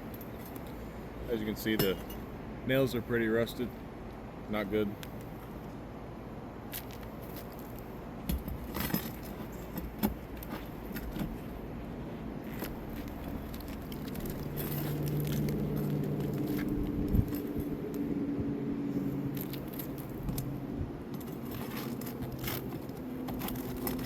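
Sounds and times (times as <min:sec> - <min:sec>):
engine hum: 0:00.0 - 0:24.0
hand tools clinking on nails: 0:01.7 - 0:02.3.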